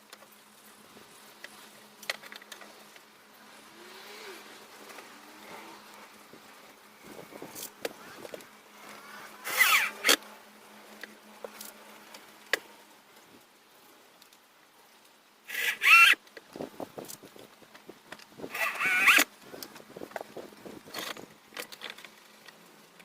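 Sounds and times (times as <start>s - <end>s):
squeaky scraping: 9.5s - 10.2s, 15.5s - 16.2s, 18.5s - 19.3s.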